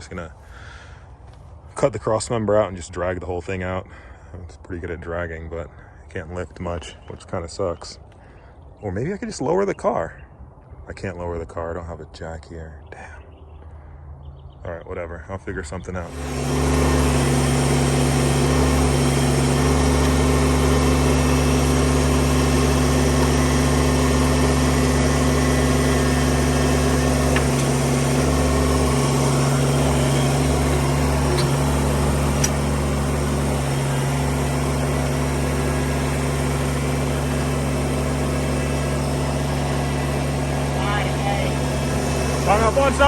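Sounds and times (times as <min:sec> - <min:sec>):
tractor engine idling: 0:16.0 - 0:43.0.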